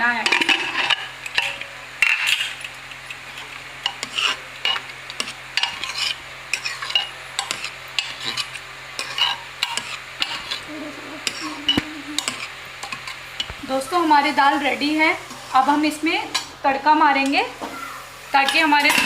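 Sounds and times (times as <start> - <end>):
metal spoon scraping pot: 3.3 - 13.5.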